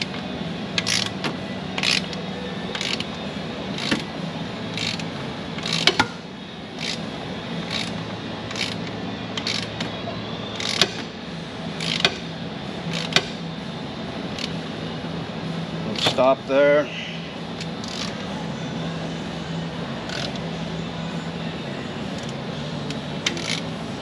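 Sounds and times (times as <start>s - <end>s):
ratchet wrench clicking: 0.8s - 1.2s, 1.8s - 4.1s, 4.7s - 6.1s, 6.8s - 7.0s, 7.6s - 9.8s, 10.6s - 11.0s, 11.8s - 12.2s, 12.9s - 13.3s, 14.3s - 14.6s, 17.6s - 18.2s, 20.1s - 20.4s, 22.1s - 23.7s.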